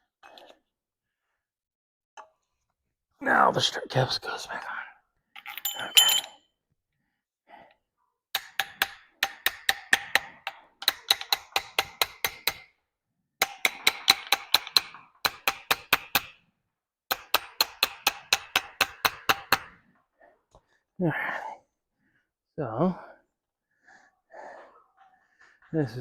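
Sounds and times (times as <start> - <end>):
metal tool clicking: 8.4 - 12.6.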